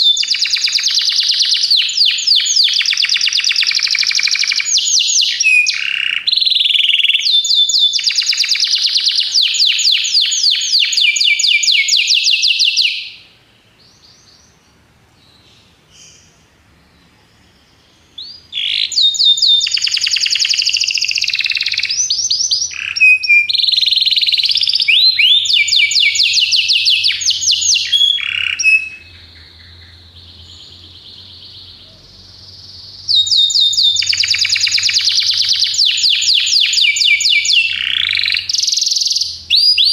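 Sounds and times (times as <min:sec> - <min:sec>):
canary trilling: 0:00.0 - 0:13.3, 0:18.2 - 0:39.9
canary soft whistling: 0:18.2 - 0:29.1.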